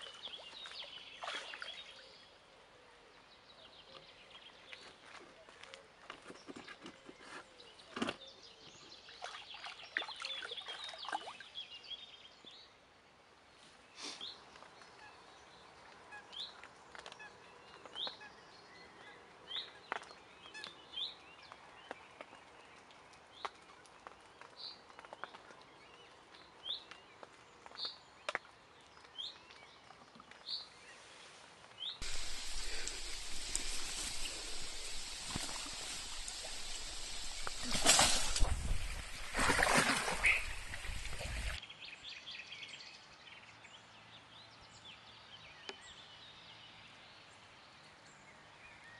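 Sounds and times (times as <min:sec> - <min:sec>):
birds twittering: 0:31.8 - 0:42.0.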